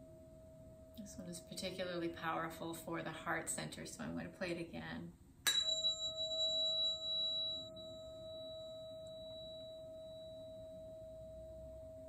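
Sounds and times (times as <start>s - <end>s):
tuning fork ringing: 0.0s - 1.7s, 5.4s - 12.0s.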